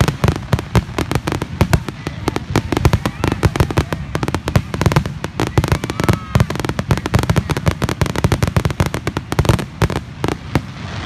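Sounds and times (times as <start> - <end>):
fireworks banging: 0.0 - 11.0.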